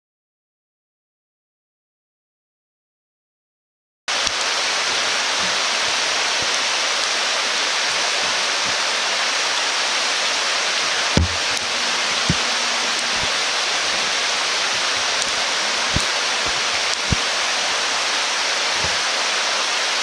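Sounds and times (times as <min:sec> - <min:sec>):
steady rushing hiss: 0:04.1 - 0:20.0
soft knocks: 0:11.2 - 0:17.3.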